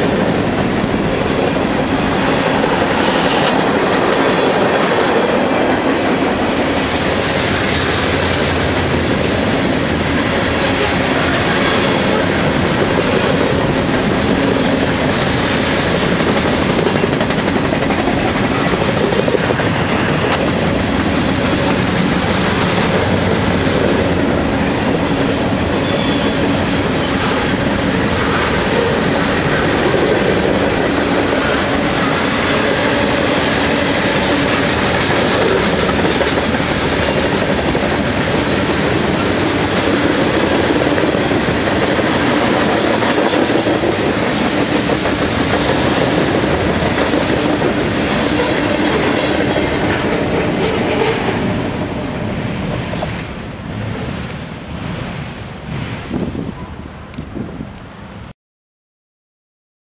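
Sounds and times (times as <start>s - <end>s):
freight train wheels rattling: 0.0s - 56.6s.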